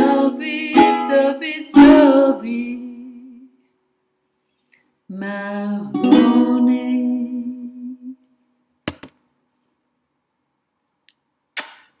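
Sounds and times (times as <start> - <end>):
ukulele chord ringing: 0.0 - 2.4, 5.9 - 7.7.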